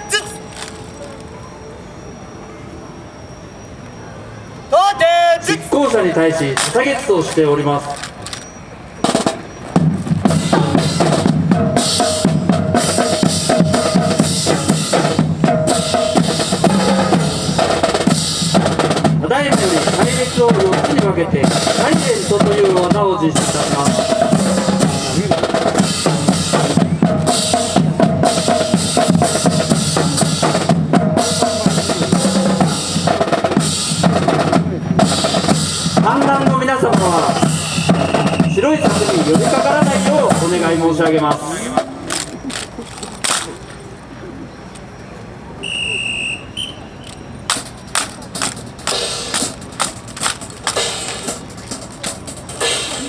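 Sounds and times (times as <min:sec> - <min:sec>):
marching drums cadence: 0:04.8 - 0:44.0, 0:45.6 - 0:53.0
high steady tone: 0:10.2 - 0:41.0
rifles clacking: 0:41.8 - 0:43.8, 0:47.0 - 0:53.0.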